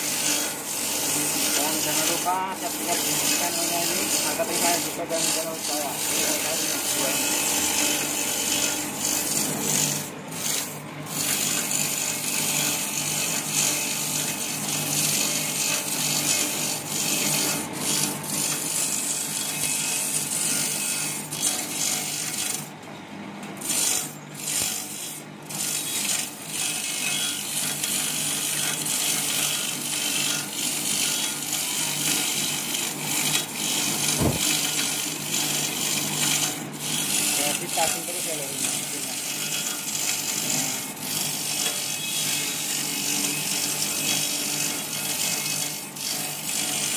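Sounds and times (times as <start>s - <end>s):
motor hum: 0.0s - 13.0s, 33.7s - 39.2s
grinding disc rasping: 0.0s - 22.7s, 23.5s - 46.9s.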